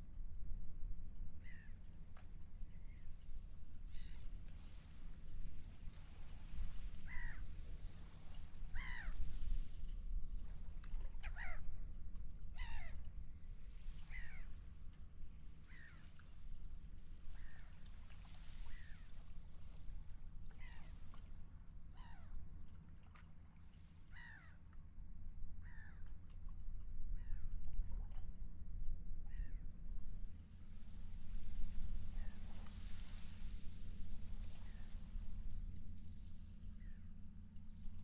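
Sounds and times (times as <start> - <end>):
wind and water rumble: 0.0 - 38.0
seagulls calling: 7.1 - 7.4, 8.8 - 9.2, 12.6 - 13.0.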